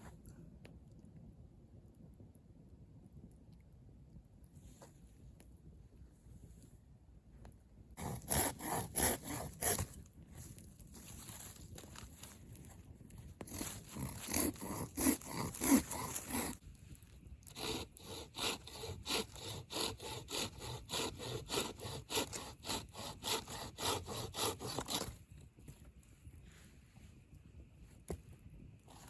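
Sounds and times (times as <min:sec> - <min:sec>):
hand saw cutting wood: 0:08.0 - 0:09.9, 0:13.5 - 0:16.6, 0:17.5 - 0:25.2.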